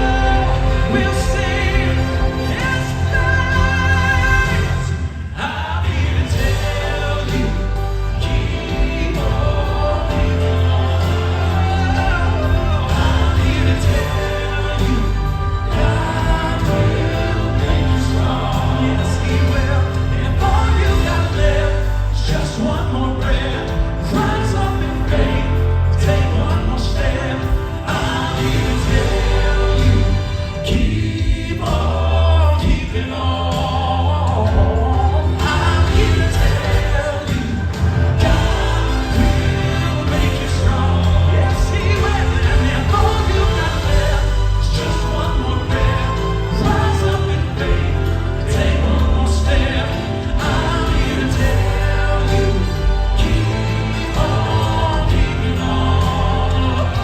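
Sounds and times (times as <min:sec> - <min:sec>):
instrumental backing with bass: 0:00.0 - 0:57.0
male vocal group singing in harmony: 0:00.0 - 0:57.0.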